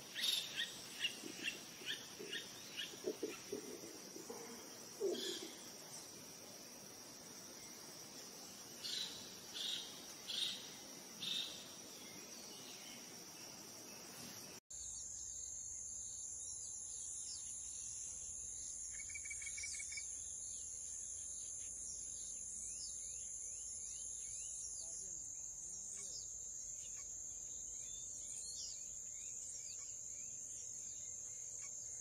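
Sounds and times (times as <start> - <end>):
birds calling: 0.0 - 6.1
birds chirping: 0.0 - 14.6
insects droning: 0.0 - 32.0.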